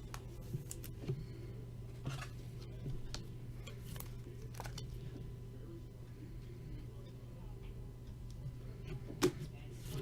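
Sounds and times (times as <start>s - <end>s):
low electrical hum: 0.0s - 10.0s
trading cards clicking and rustling: 3.1s - 4.9s.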